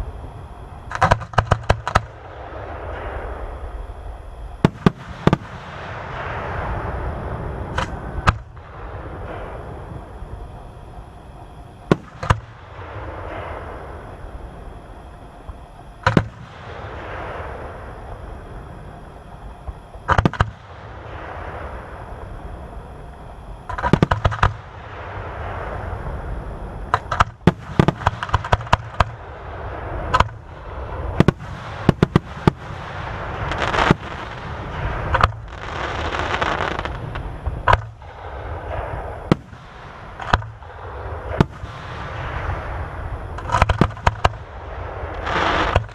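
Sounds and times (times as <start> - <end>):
rushing crackling noise: 0.0 - 45.9
fireworks bursting: 0.8 - 45.9.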